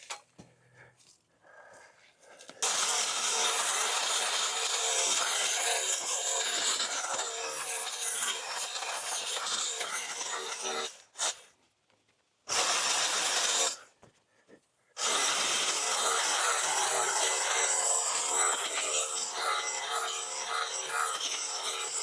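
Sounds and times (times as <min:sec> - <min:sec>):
small chainsaw cutting branches: 0:02.6 - 0:11.4, 0:12.5 - 0:13.8, 0:15.0 - 0:22.0.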